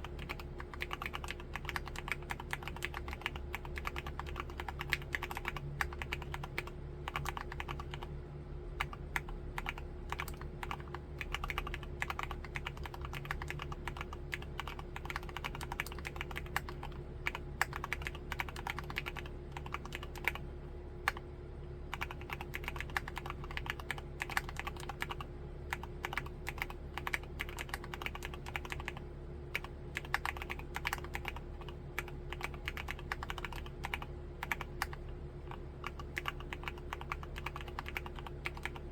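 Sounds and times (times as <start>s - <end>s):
mechanical keyboard typing: 0.0s - 8.1s, 8.8s - 20.4s, 21.9s - 38.9s.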